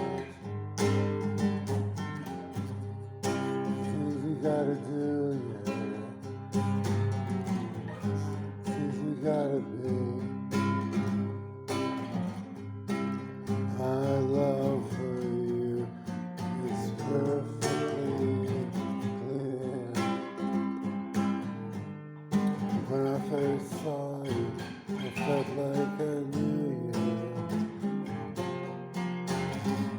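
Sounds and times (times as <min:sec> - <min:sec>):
acoustic guitar strummed: 0:00.0 - 0:29.9
person singing: 0:03.4 - 0:11.1, 0:13.4 - 0:20.6, 0:22.6 - 0:27.8.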